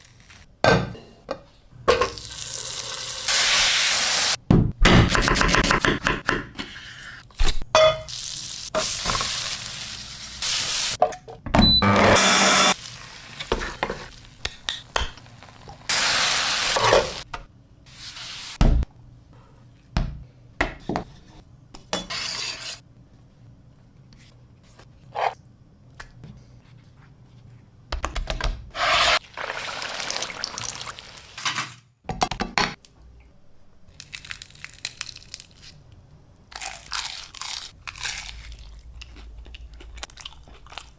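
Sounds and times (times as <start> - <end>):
frying sizzle: 2.1 - 4.4, 8.1 - 11.0, 12.7 - 17.2, 28.8 - 31.6.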